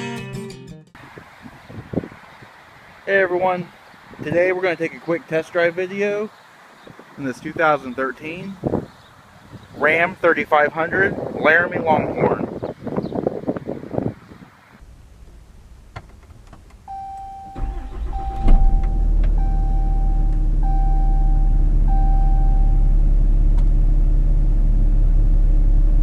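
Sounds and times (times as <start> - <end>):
diesel engine cranking and idling: 14.8 - 26.0
truck warning chime beeps: 16.9 - 22.9.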